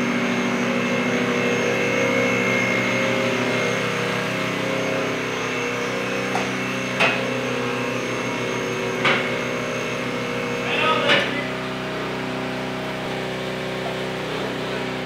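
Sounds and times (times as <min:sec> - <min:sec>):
motor running steadily: 0:00.0 - 0:15.0.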